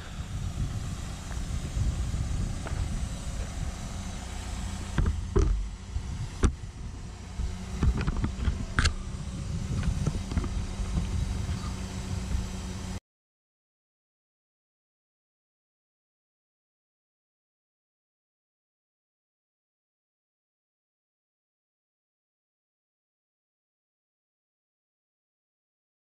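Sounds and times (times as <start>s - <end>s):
excavator diesel engine rumbling: 0.0s - 13.0s
steady low hum: 0.0s - 13.0s.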